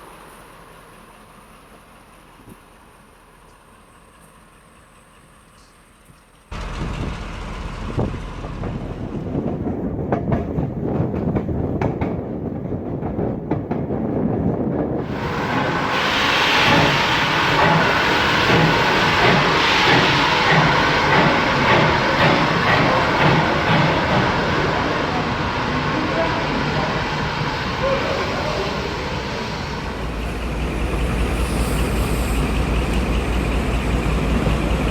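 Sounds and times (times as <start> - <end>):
train running on track: 0.0 - 34.9
loud rushing noise: 15.0 - 33.7.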